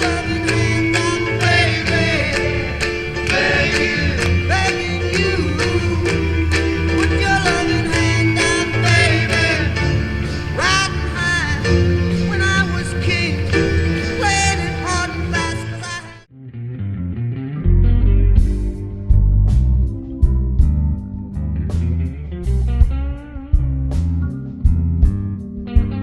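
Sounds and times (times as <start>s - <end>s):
song with singing and beat: 0.0s - 16.3s.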